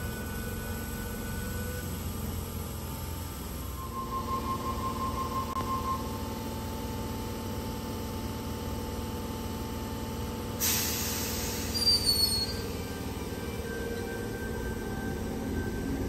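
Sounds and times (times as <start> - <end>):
electric train humming: 0.0 - 16.0
train wheels squealing: 3.6 - 6.6, 10.6 - 16.0
brakes releasing air hiss: 10.6 - 12.9.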